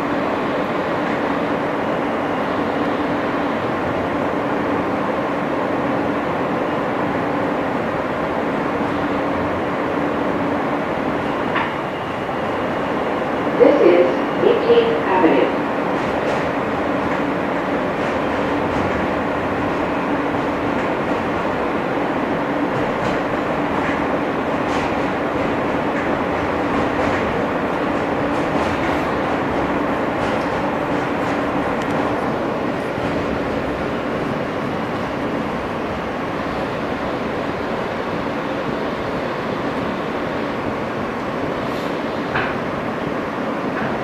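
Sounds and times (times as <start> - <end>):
subway wheels rumbling on rails: 0.0 - 44.0
constant hum: 7.2 - 37.9.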